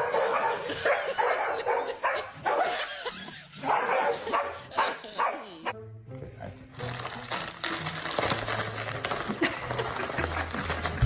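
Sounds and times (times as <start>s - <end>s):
dog barking: 0.0s - 2.9s, 3.6s - 5.6s.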